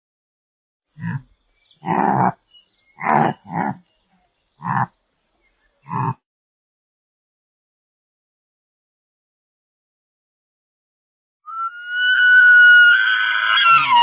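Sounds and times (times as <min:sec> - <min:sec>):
animal calls: 0:01.0 - 0:03.9, 0:04.6 - 0:05.0, 0:05.8 - 0:06.2, 0:11.5 - 0:14.0.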